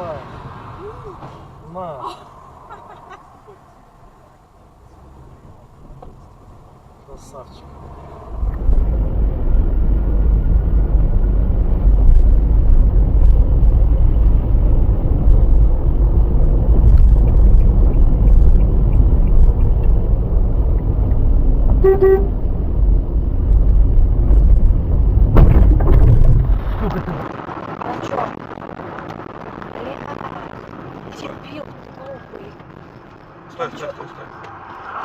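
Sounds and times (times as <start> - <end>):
car driving rumble: 0.0 - 35.0
car horn toot: 21.7 - 22.5.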